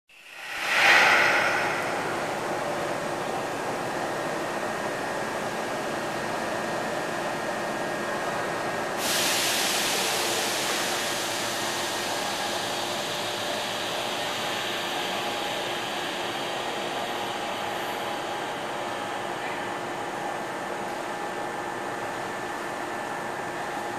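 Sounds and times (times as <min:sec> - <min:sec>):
compressed air hiss: 0:09.0 - 0:11.4.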